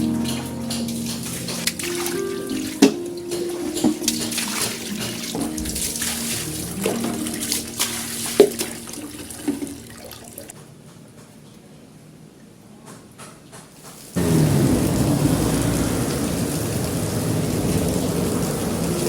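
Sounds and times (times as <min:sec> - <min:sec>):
tap water running into sink: 0:00.0 - 0:10.5.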